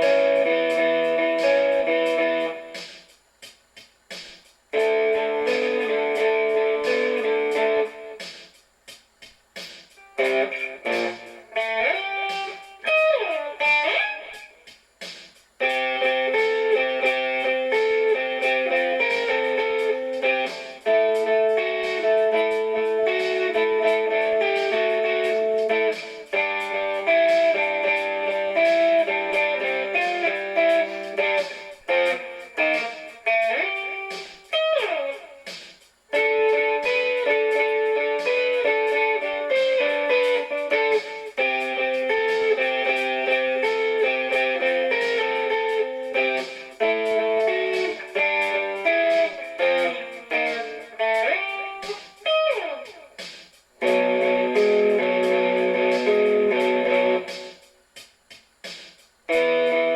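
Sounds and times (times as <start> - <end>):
electric guitar playing: 0.0 - 2.9, 4.7 - 8.4, 10.0 - 14.7, 15.6 - 57.8, 59.3 - 59.9.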